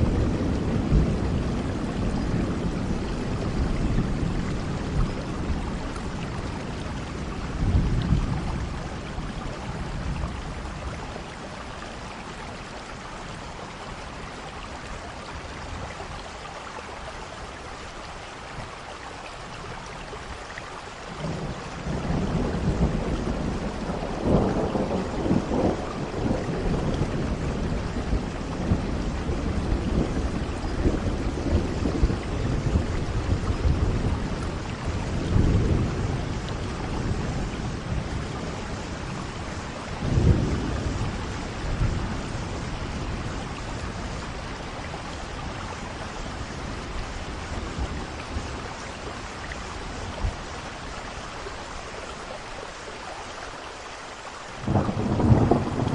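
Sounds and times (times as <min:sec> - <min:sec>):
rolling thunder: 0:00.0 - 0:11.0, 0:21.2 - 0:50.7, 0:54.6 - 0:55.9
steady rain: 0:00.0 - 0:55.9.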